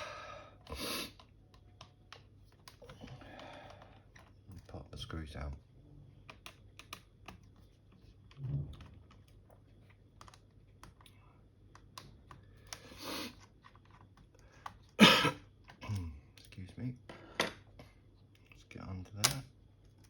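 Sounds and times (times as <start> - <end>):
person coughing: 15.0 - 16.0.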